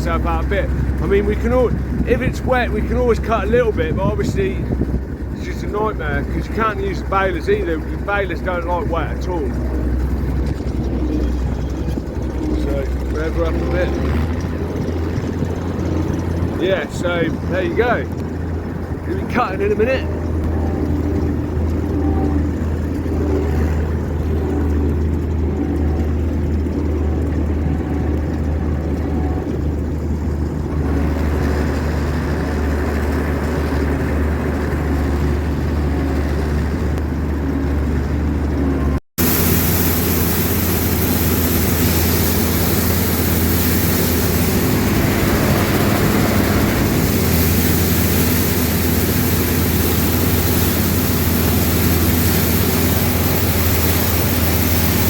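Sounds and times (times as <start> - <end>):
combine harvester engine drone: 0.0 - 55.0
hiss: 39.2 - 55.0.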